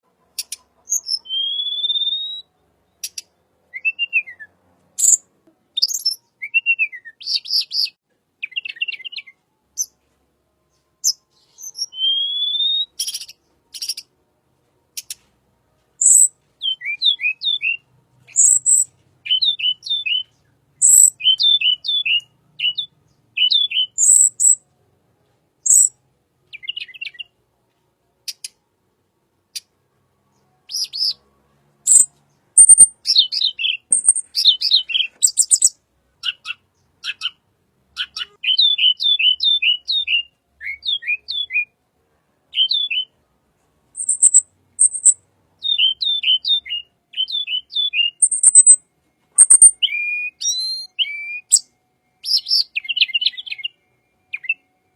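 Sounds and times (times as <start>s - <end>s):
bird singing: 0.1s - 10.0s, 10.7s - 14.1s, 16.0s - 24.6s, 25.6s - 27.4s, 29.6s - 41.7s, 42.5s - 43.2s, 44.0s - 54.9s.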